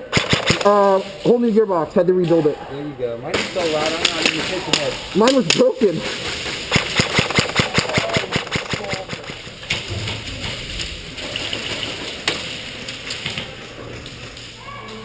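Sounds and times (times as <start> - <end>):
airsoft gun firing: 0.0 - 1.0, 6.6 - 9.9.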